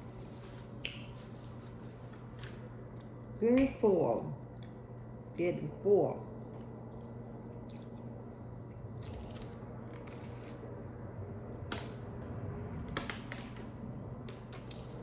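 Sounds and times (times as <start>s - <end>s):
steady low hum: 0.0s - 15.0s
person chewing food: 6.4s - 10.5s.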